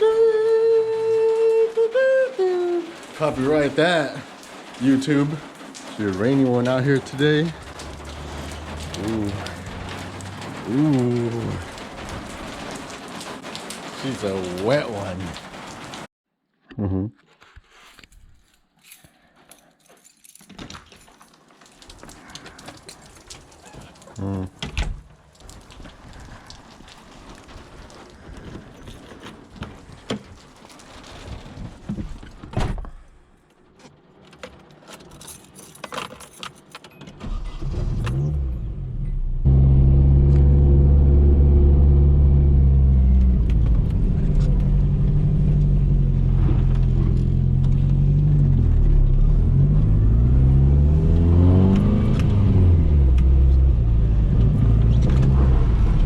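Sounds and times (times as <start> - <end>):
car engine starting and revving: 6.0 - 13.0, 37.2 - 56.0
keys rattling and clicking: 18.5 - 21.5, 34.2 - 37.1.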